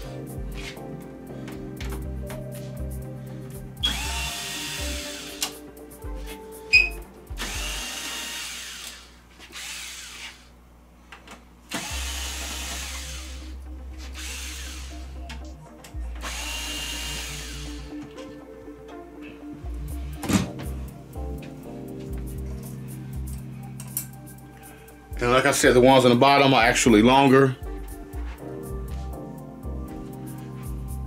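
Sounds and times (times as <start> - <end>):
power drill whining: 3.8 - 5.6, 6.8 - 10.6, 11.7 - 15.2, 16.2 - 18.2.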